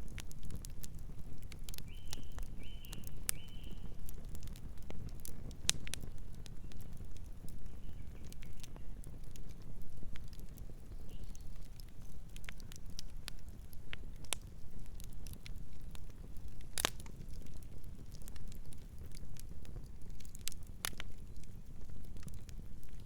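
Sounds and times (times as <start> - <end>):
campfire crackling and popping: 0.0 - 23.0.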